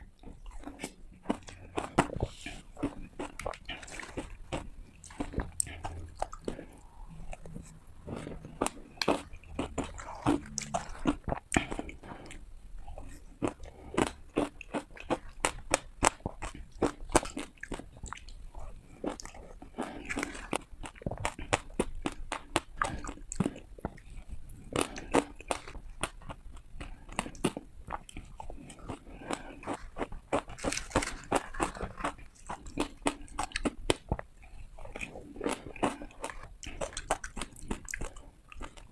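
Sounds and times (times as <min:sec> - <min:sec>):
ice crunched between teeth: 0:29.7 - 0:34.0.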